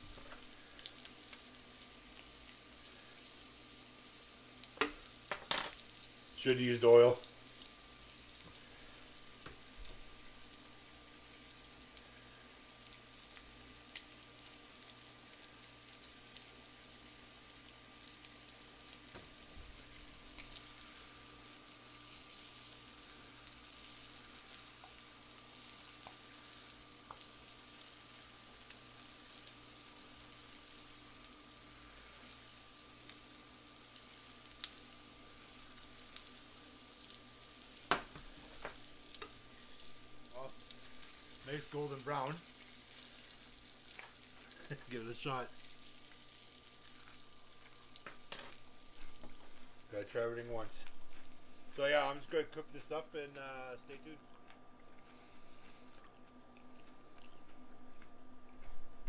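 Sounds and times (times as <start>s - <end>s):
small crackles and pops: 0.0s - 6.5s, 7.1s - 51.8s, 53.2s - 59.0s
roe sizzling in butter: 0.0s - 55.8s.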